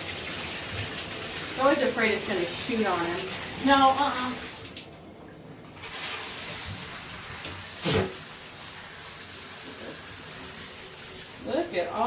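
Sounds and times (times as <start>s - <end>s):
shower sprayer hissing: 0.0s - 4.7s, 5.8s - 12.0s.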